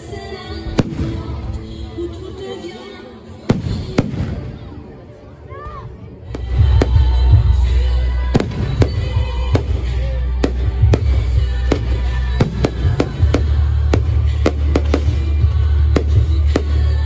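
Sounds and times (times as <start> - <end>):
fireworks bursting with sharp bangs: 0.6 - 1.7, 3.4 - 4.9, 6.3 - 17.0.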